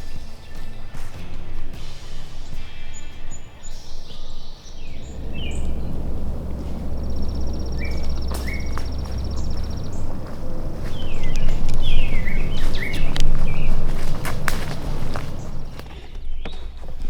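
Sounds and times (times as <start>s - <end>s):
songbirds chirping and trilling: 2.8s - 15.9s
low rumble: 4.9s - 15.9s.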